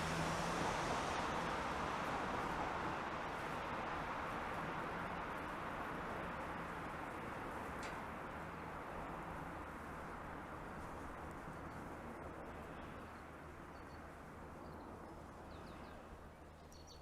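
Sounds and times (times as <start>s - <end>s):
passing train rushing: 0.0s - 13.6s.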